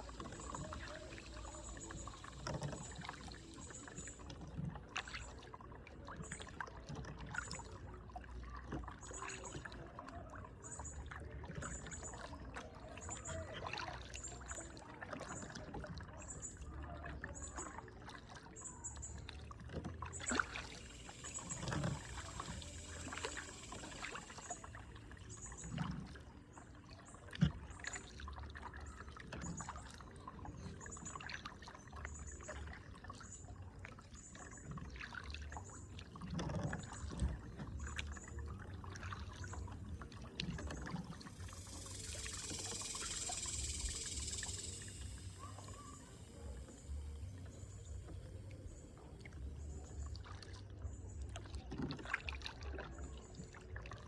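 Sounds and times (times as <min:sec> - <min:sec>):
paddle splashing water: 0:00.0 - 0:54.0.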